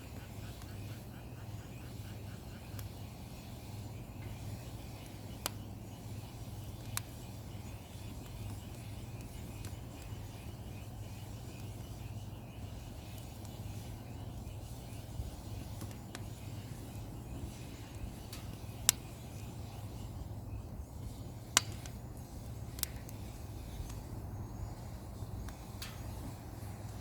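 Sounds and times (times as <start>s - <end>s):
faint hiss: 0.0s - 27.0s
steady low hum: 0.0s - 27.0s
firewood popping: 2.4s - 27.0s.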